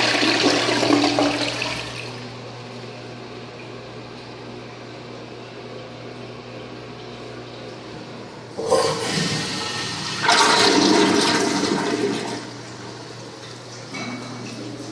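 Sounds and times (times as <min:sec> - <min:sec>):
toilet flush rushing: 0:00.0 - 0:02.2, 0:08.5 - 0:14.9.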